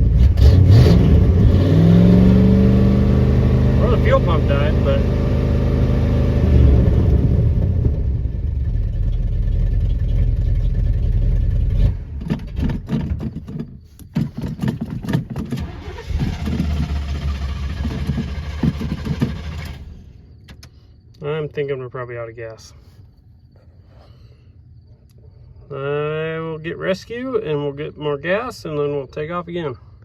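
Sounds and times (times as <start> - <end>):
truck engine sputtering: 0.0 - 20.7.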